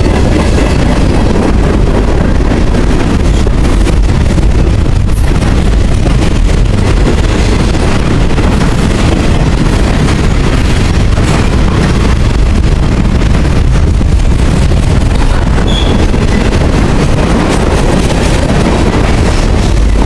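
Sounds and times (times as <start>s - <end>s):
freight train wheels rumbling: 0.0s - 20.0s
wind buffeting microphone: 0.0s - 20.0s.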